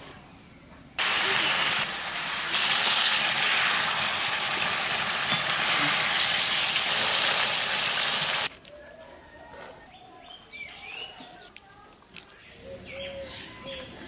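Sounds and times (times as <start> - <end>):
curry sizzling in a pan: 1.0 - 8.5.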